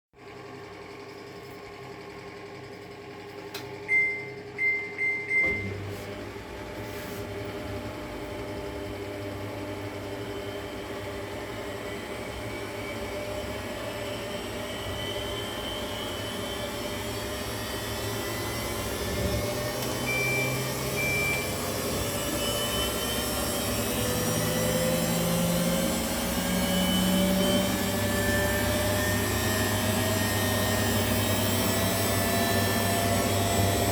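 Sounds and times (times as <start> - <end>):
washing machine beeping: 3.5 - 6.7, 7.3 - 33.9
washing machine drum spinning: 10.9 - 33.9.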